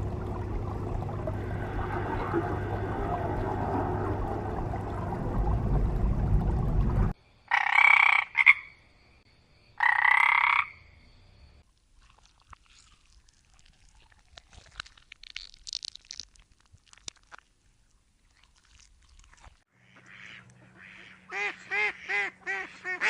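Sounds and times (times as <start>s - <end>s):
low rushing noise: 0.0s - 7.2s.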